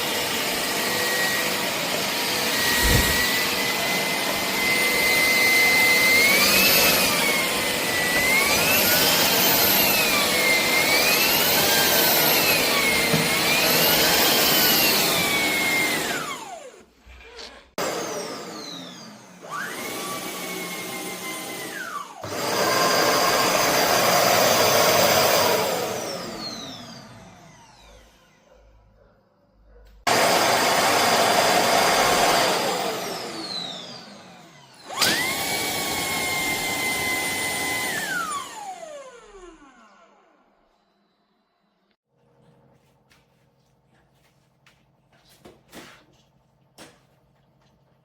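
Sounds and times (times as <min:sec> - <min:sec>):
vacuum motor whine: 0:00.0 - 0:16.8, 0:17.4 - 0:28.4, 0:30.1 - 0:41.5
rushes of air: 0:02.6 - 0:03.4.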